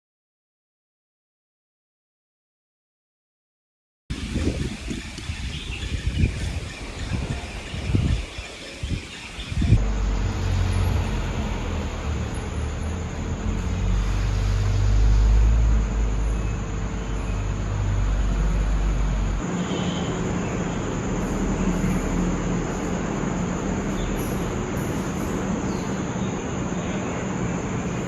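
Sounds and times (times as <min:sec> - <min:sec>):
low rumble of moving vehicle: 0:08.9 - 0:28.0.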